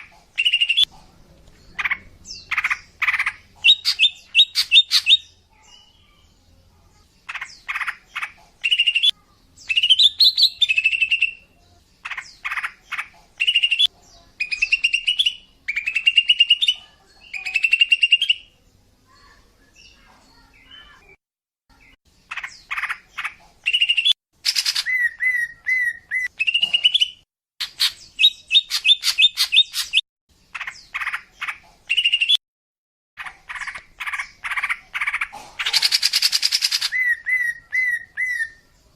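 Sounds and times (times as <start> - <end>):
bird chattering song: 0.0 - 32.4, 33.2 - 38.9.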